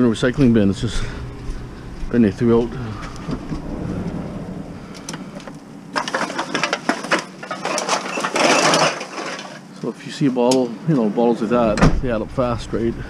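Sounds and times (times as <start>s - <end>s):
bottles and cans clattering: 6.0s - 9.7s.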